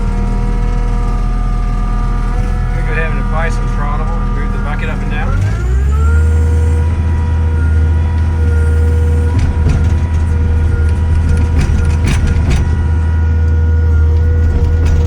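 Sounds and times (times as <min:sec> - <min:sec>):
diesel engine droning: 0:00.0 - 0:15.0
metal clanks and knocks: 0:08.0 - 0:15.0.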